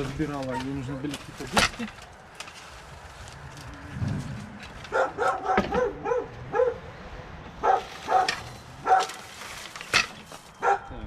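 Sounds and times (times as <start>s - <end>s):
dog barking: 4.9s - 6.8s, 7.6s - 9.2s, 10.6s - 10.9s.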